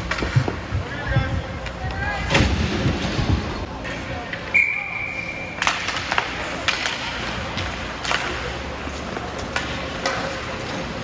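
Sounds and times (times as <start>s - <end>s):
hockey sticks and puck clacking: 0.0s - 2.0s, 5.5s - 11.0s
arena noise: 0.0s - 11.0s
whistle tone: 4.5s - 5.6s.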